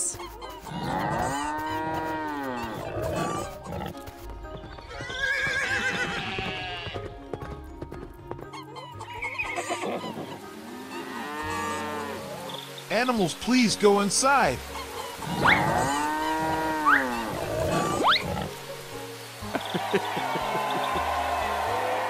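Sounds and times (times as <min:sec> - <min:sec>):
light background music: 0:00.0 - 0:22.0
horse whinnying: 0:04.9 - 0:07.1, 0:08.5 - 0:10.4, 0:15.2 - 0:18.6
cows mooing: 0:10.7 - 0:12.5.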